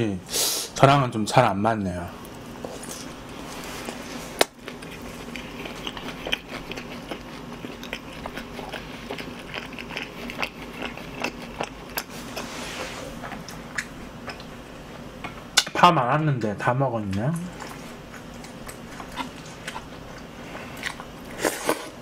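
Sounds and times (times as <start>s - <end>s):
man chewing with mouth clicks: 2.3s - 15.1s, 17.4s - 22.0s.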